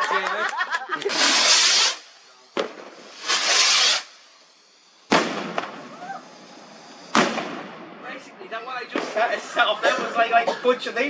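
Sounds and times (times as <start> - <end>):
firework whooshing up: 0.8 - 9.5
firework bang: 2.6 - 4.1, 5.1 - 6.2, 7.0 - 8.0.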